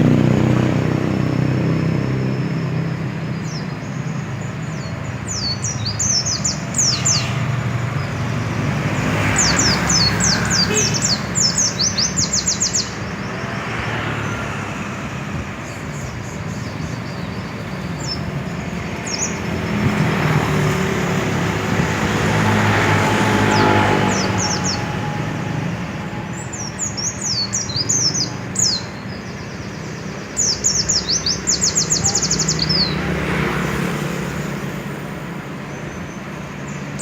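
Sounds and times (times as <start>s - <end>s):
low hum of road traffic: 0.0s - 37.0s.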